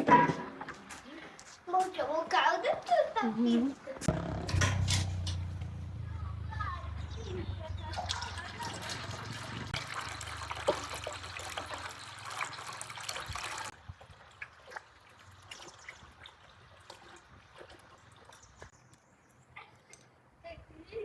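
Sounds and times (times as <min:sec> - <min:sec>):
liquid pouring and trickling: 0:07.8 - 0:18.7.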